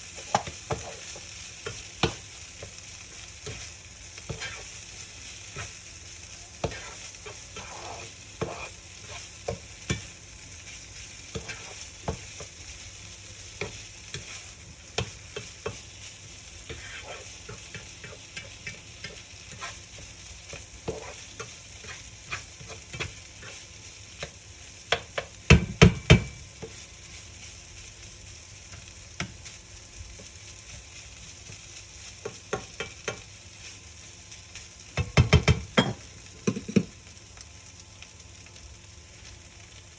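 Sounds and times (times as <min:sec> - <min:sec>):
food sizzling in a frying pan: 0:00.0 - 0:39.9
utensil scraping pan: 0:04.3 - 0:04.8, 0:06.6 - 0:09.3, 0:11.3 - 0:12.3, 0:16.7 - 0:23.6.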